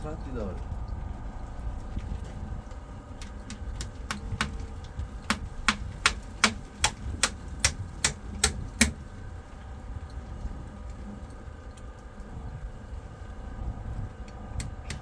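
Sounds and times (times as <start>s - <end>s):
steady low rumble: 0.0s - 15.0s
sharp clicks or knocks: 3.2s - 9.0s.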